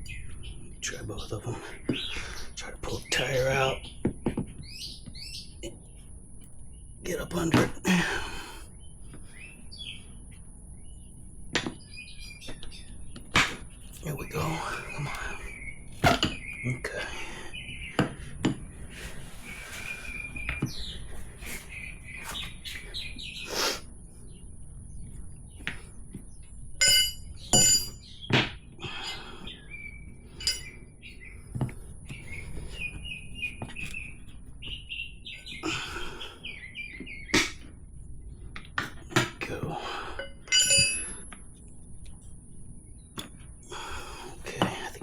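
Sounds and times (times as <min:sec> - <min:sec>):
small birds chirping: 0:00.0 - 0:45.0
tire irons clinking on metal rim: 0:26.8 - 0:28.1, 0:30.4 - 0:30.8, 0:40.2 - 0:41.4.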